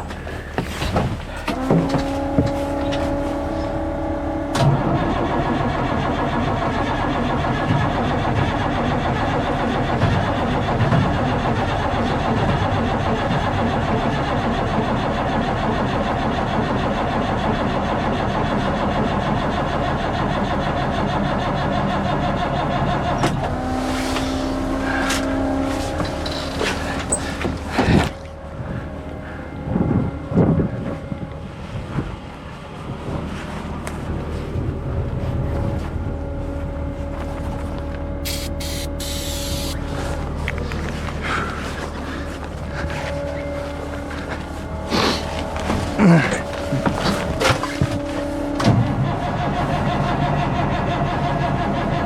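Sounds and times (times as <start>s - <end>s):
truck engine cranking: 0.0s - 29.7s, 37.2s - 52.0s
steady whine: 21.8s - 52.0s.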